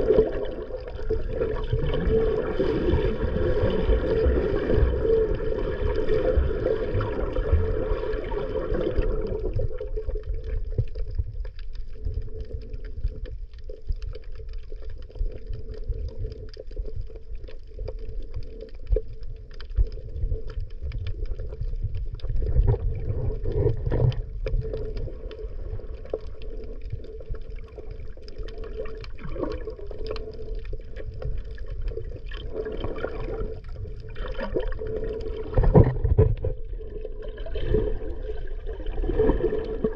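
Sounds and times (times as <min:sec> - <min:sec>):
low muffled underwater rumble: 0:00.0 - 0:39.9
clicks and crackles: 0:08.8 - 0:39.9.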